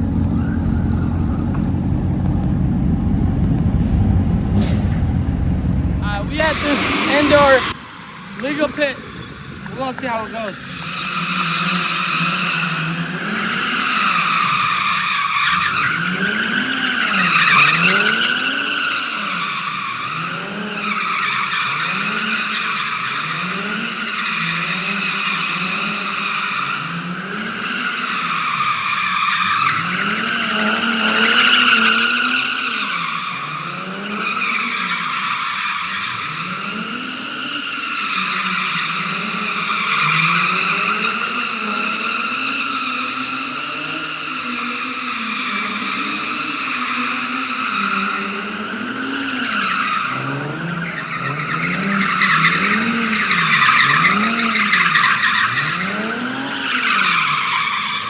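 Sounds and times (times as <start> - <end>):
car engine revving: 0.0 - 19.6
tires squealing: 0.0 - 58.0.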